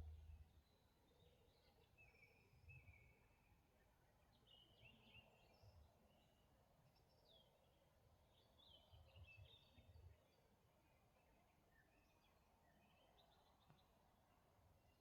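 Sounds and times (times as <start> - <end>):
soft low rumbles: 0.0 - 0.5.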